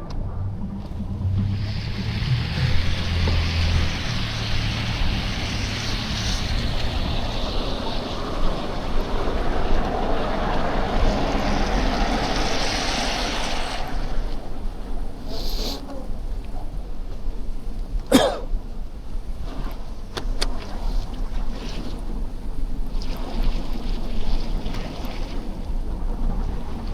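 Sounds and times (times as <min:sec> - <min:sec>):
low engine hum: 0:00.0 - 0:15.3
wind on microphone: 0:00.0 - 0:26.9
bicycle wheels on slush: 0:00.8 - 0:17.8, 0:19.0 - 0:26.9.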